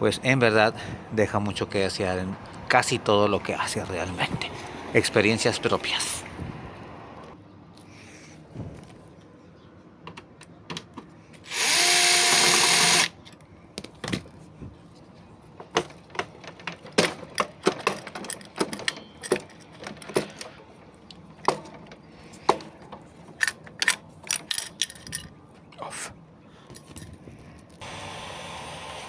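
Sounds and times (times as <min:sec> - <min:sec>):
tools and metal parts clicking: 0:10.1 - 0:13.5, 0:15.6 - 0:25.8, 0:26.6 - 0:27.8
power drill running: 0:11.5 - 0:13.2, 0:27.8 - 0:29.0.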